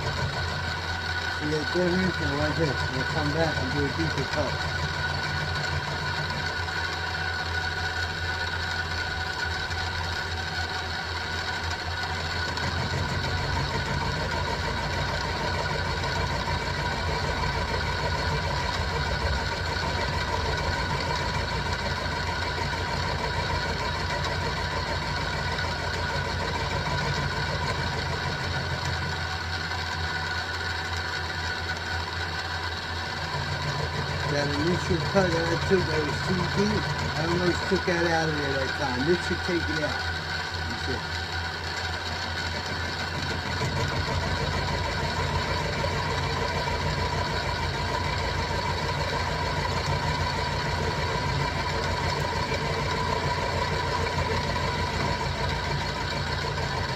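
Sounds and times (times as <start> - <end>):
milling machine motor and gear whine: 0.0 - 56.9.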